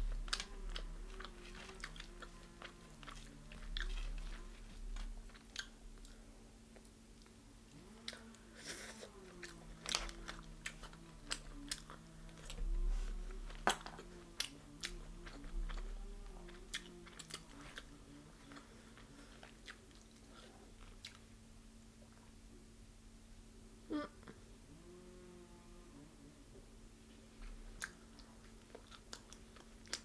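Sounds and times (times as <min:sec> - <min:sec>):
crunching fried chicken: 0:00.0 - 0:06.2, 0:06.8 - 0:21.3.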